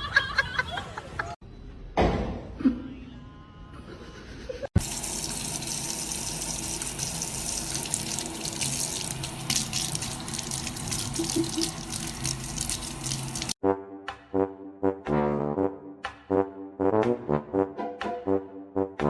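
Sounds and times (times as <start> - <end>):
water running with splashing: 4.8 - 13.6.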